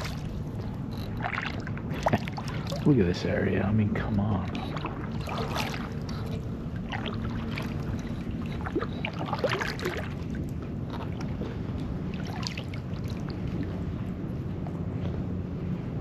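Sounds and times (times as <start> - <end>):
kayak paddle dipping into water: 0.0 - 3.0, 4.0 - 13.8
low rumble: 0.0 - 16.0.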